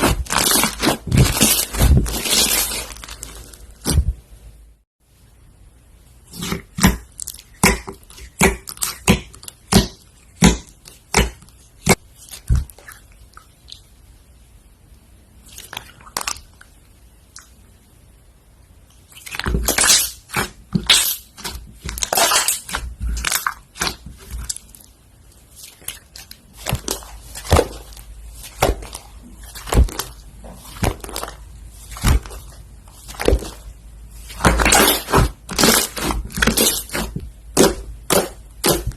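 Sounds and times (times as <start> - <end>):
slime squishing and popping: 0.0 - 4.1, 19.0 - 24.9, 25.6 - 38.9.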